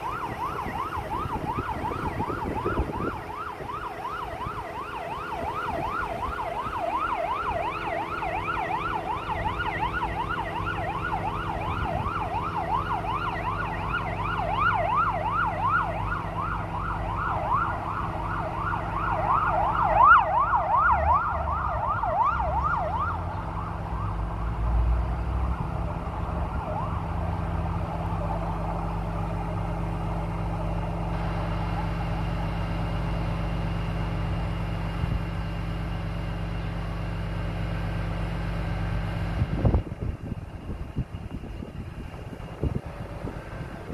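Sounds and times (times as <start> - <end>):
electronic siren yelping: 0.0 - 24.2, 25.5 - 30.1
truck engine humming: 0.0 - 43.9.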